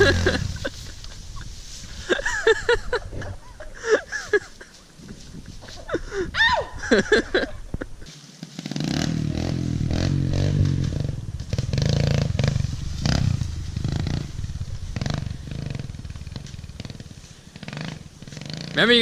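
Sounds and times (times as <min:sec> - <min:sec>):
dirt bike engine revving: 0:00.0 - 0:03.1, 0:08.4 - 0:19.0.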